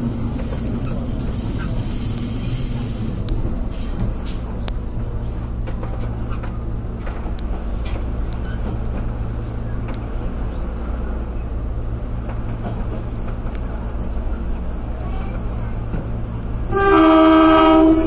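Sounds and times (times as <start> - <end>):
diesel railcar engine drone: 0.0 - 18.0
wheels rumbling on rail: 0.0 - 18.0.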